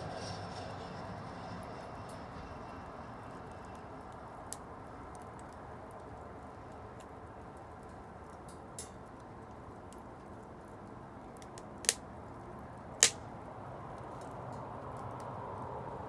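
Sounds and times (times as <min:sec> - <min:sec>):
bonfire burning with crackles: 0:00.0 - 0:16.0
loud fire pops: 0:11.4 - 0:12.1, 0:13.0 - 0:13.5.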